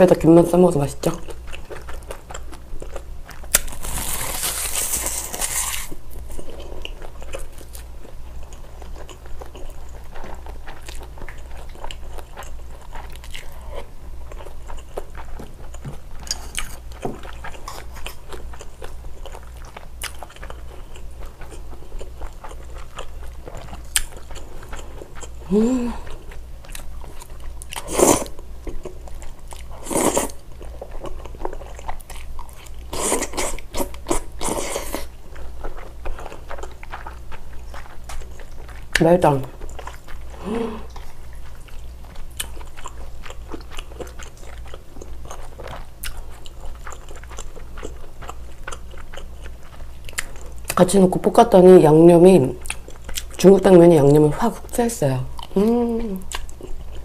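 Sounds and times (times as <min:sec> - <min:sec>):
chewing with wet clicks: 0:01.0 - 0:03.7, 0:06.5 - 0:25.4, 0:26.1 - 0:27.9, 0:28.6 - 0:51.7, 0:52.6 - 0:54.3, 0:56.2 - 0:57.0
crisp seaweed crunch: 0:03.4 - 0:06.0.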